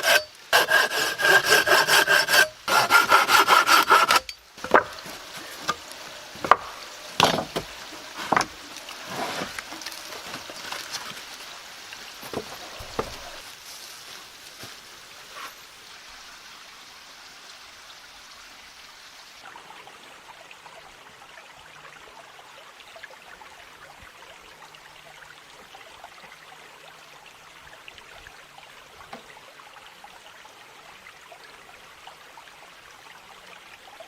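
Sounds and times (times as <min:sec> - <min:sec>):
wood knocking: 0:00.0 - 0:05.8, 0:06.4 - 0:07.7
faint steady hiss: 0:00.0 - 0:34.0.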